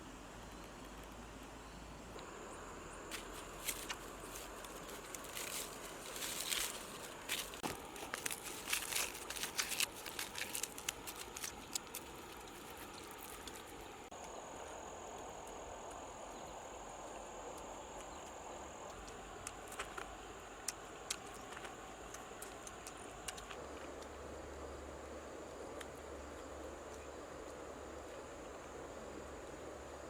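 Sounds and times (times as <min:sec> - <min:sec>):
steady hiss: 0:00.0 - 0:17.8
light clicks and crackles: 0:03.1 - 0:16.5, 0:17.5 - 0:24.2.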